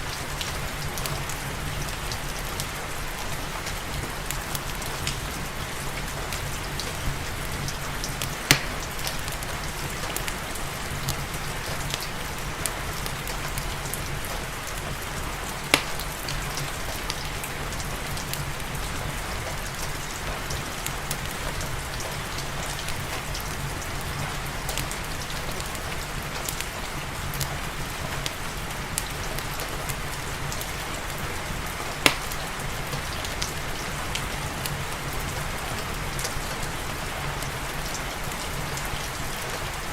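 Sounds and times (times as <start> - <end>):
steady rain: 0.0 - 39.9
wood fire crackling: 0.0 - 39.9
sharp fire pops: 8.2 - 9.4, 15.7 - 16.4, 32.0 - 32.4.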